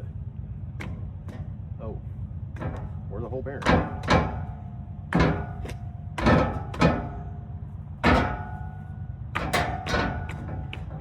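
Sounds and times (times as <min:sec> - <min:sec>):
sharp metallic knocks: 0:02.6 - 0:07.3, 0:08.0 - 0:11.0.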